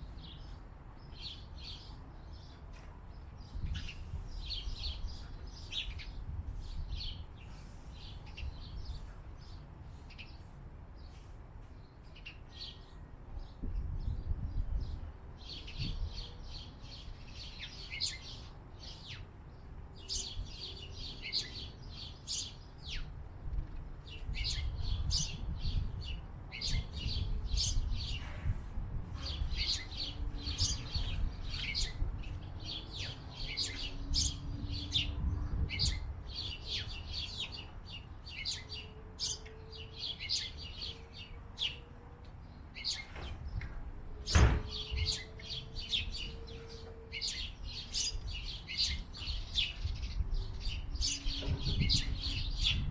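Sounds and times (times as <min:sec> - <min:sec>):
small birds chirping: 0:00.0 - 0:52.9
sharp knock: 0:44.3 - 0:44.7.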